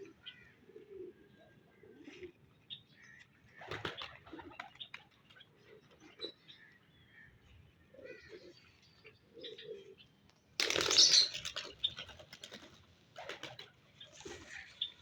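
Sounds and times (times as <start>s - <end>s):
pigeon cooing softly: 0.0s - 2.5s, 9.3s - 10.0s
wings flapping: 10.6s - 14.6s.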